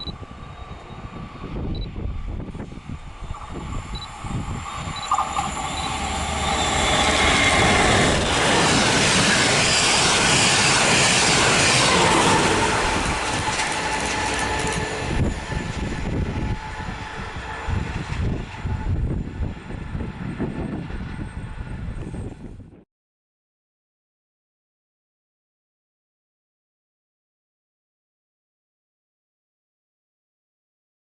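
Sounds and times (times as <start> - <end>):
passenger train passing: 0.0 - 22.8.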